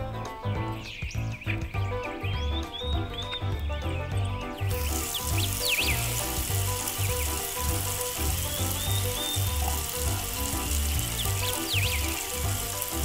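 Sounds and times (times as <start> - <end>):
background music with beat: 0.0 - 13.0
tap water running into sink: 4.6 - 13.0.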